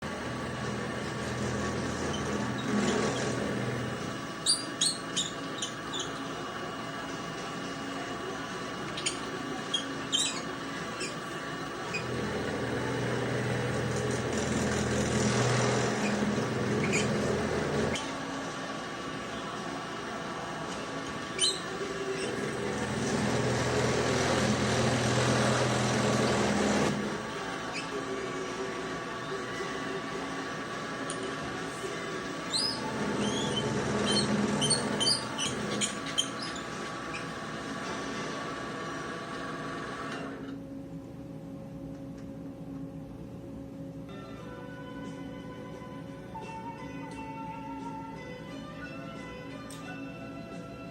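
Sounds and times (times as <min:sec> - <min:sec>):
machine tool motor humming: 0:00.0 - 0:40.4
short high squeaks: 0:01.9 - 0:03.6, 0:04.4 - 0:06.3, 0:08.9 - 0:11.3, 0:15.1 - 0:18.0, 0:21.3 - 0:22.4, 0:27.7 - 0:28.0, 0:32.5 - 0:37.4.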